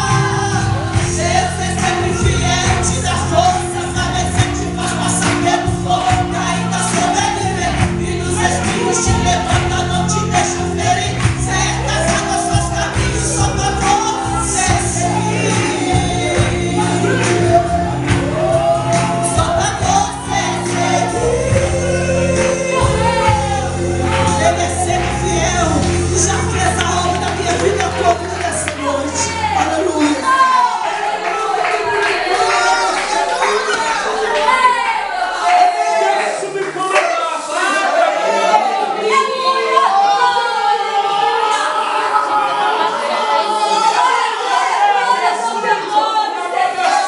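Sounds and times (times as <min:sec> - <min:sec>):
steady beat: 0:00.0 - 0:29.4
keyboard chords: 0:00.0 - 0:36.2
gospel voices singing: 0:00.0 - 0:47.0.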